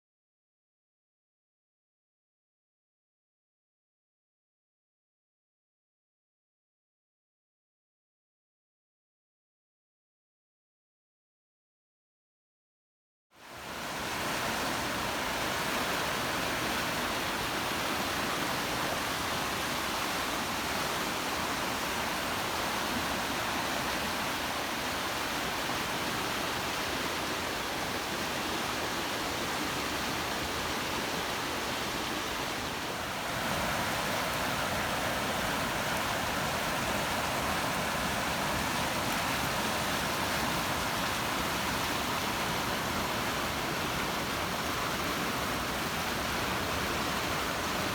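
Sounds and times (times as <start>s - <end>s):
heavy rain pouring: 29.7s - 47.9s.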